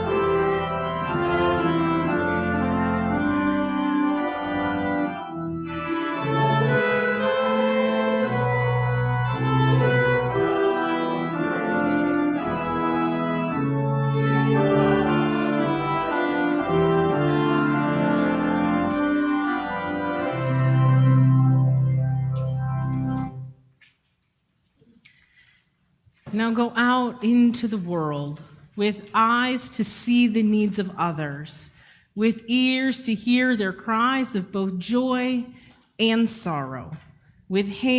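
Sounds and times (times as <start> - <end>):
organ playing sustained chords: 0.0 - 23.6.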